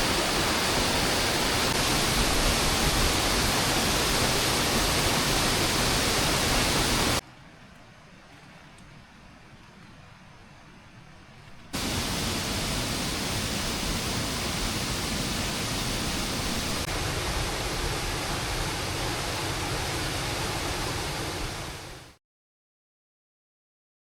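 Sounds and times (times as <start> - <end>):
heavy rain falling: 0.0 - 7.2, 11.8 - 22.2.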